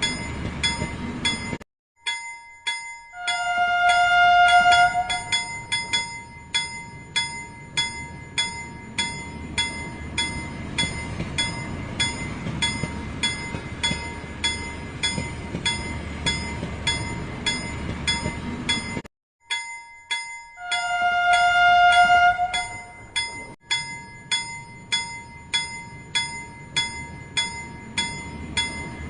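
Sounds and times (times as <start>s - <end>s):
background music with chiming beat: 0.0s - 21.1s.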